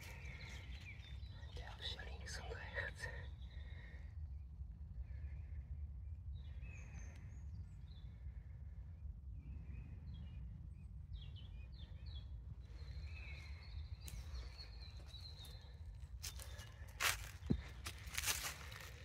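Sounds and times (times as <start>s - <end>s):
small birds chirping: 0.0s - 19.0s
steady low rumble: 0.0s - 19.0s.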